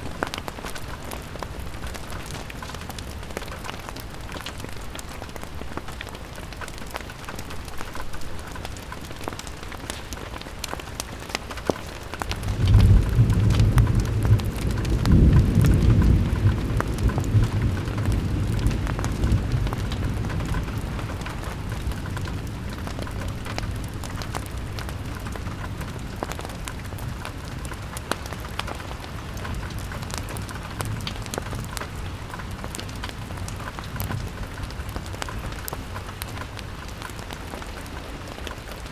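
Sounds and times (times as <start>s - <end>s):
rain pattering on window glass: 0.0s - 38.9s
rolling thunder rumble: 12.3s - 27.2s.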